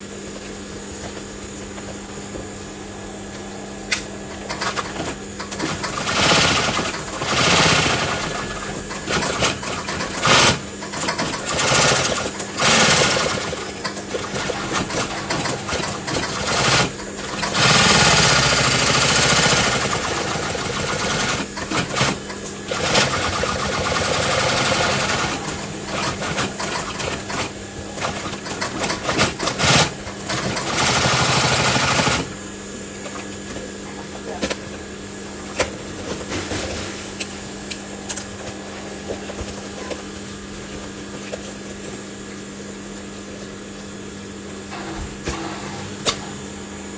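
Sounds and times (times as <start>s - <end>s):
steady motor hum: 0.0s - 46.9s
sewing machine stitching: 4.5s - 32.4s.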